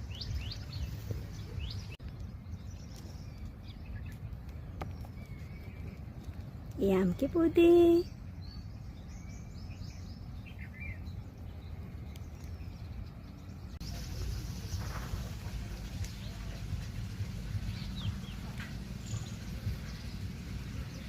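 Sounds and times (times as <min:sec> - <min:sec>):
small birds chirping: 0:00.0 - 0:21.0
low rumble: 0:08.0 - 0:21.0.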